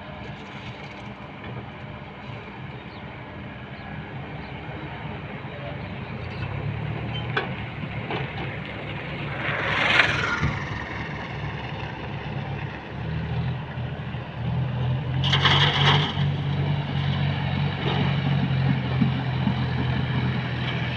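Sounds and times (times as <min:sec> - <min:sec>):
diesel engine running: 0:00.0 - 0:20.9
short loud rushing noises: 0:09.0 - 0:11.4.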